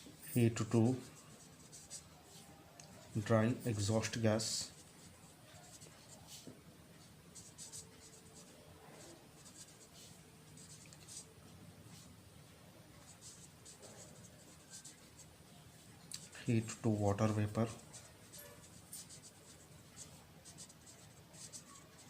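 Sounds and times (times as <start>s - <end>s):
pen scratching while writing: 1.0s - 2.5s, 4.7s - 11.3s, 13.0s - 15.3s, 17.6s - 22.0s.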